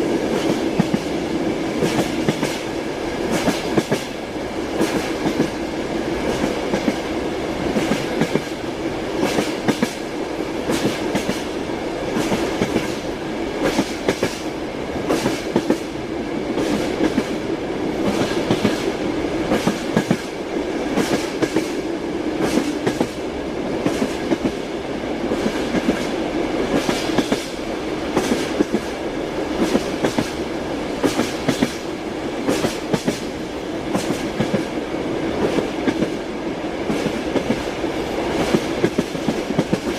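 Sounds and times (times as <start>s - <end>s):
railway carriage rumbling: 0.0s - 39.9s
train wheels clacking over rail joints: 1.8s - 2.7s, 3.3s - 5.6s, 7.7s - 8.6s, 9.2s - 10.0s, 10.6s - 15.9s, 18.0s - 18.9s, 19.5s - 23.2s, 25.3s - 29.0s, 29.6s - 30.4s, 31.0s - 34.8s, 38.3s - 39.9s.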